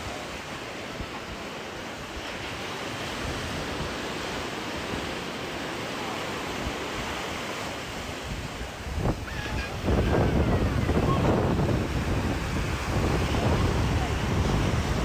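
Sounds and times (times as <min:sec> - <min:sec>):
surf washing onto beach: 0:00.0 - 0:15.0
wind on microphone: 0:08.0 - 0:15.0.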